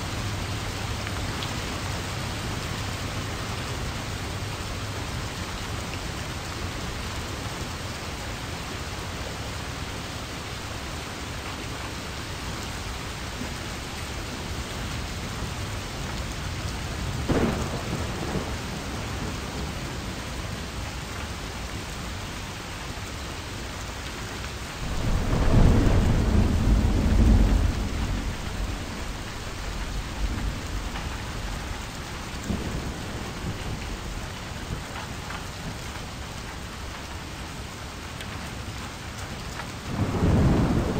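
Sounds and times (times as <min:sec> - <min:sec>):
steady rain: 0:00.0 - 0:40.9
thunder rumbling: 0:17.1 - 0:20.3, 0:24.8 - 0:35.7, 0:39.8 - 0:40.9.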